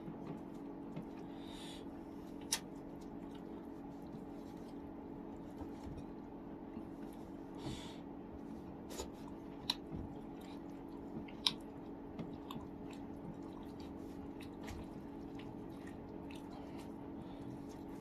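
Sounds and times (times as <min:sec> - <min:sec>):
steady low hum: 0:00.0 - 0:18.0
person chewing food: 0:02.2 - 0:18.0
mouth smacks and clicks: 0:02.4 - 0:02.7.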